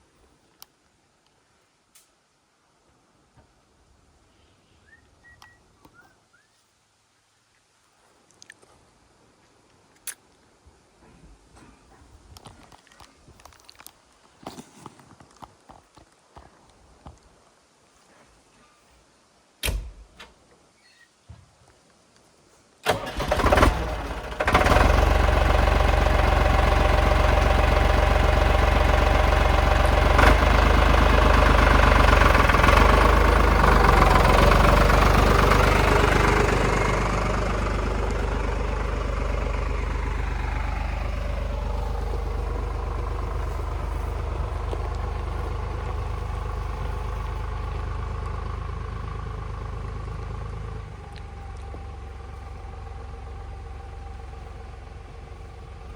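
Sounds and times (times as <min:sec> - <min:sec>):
tractor engine starting and idling: 0:22.8 - 0:55.9.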